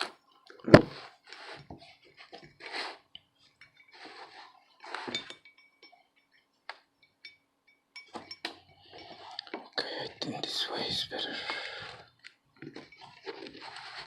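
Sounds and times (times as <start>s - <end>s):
small metal tools clinking: 3.6s - 9.6s.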